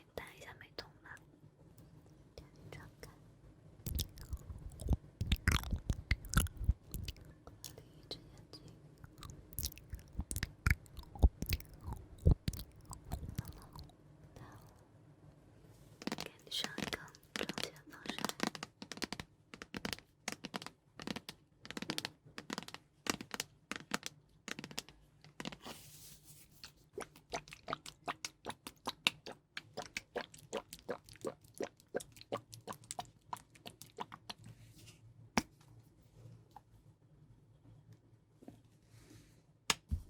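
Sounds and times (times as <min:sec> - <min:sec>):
crisp crackles and clicks: 0:03.9 - 0:07.8, 0:09.0 - 0:14.7.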